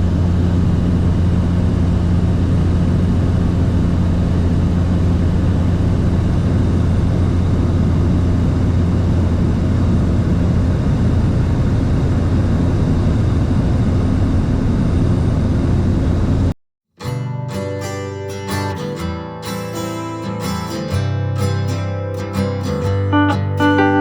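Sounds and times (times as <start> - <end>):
light aircraft engine drone: 0.0 - 16.5
acoustic guitar music: 17.0 - 24.0.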